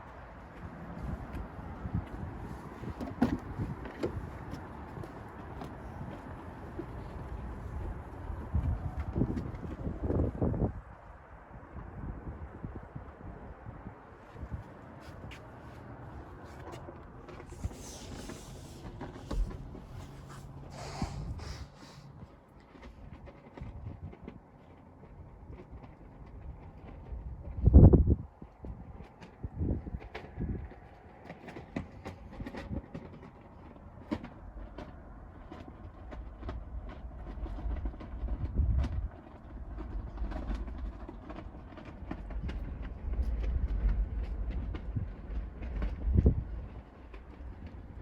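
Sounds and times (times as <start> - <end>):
wind buffeting microphone: 0.0 - 24.4, 25.1 - 48.0
brief hissing: 20.7 - 22.1.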